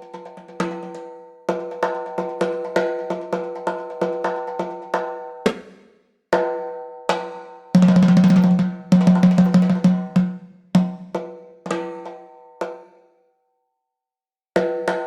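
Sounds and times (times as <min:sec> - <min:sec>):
ringing percussion strikes: 0:08.0 - 0:10.4.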